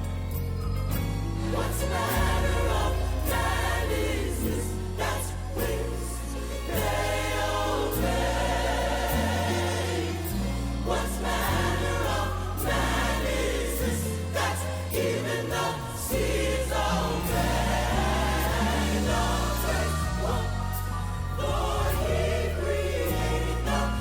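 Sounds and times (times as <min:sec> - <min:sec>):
choir singing in harmony: 0:00.0 - 0:24.0
instrumental backing: 0:00.0 - 0:24.0
low bass notes: 0:00.0 - 0:24.0.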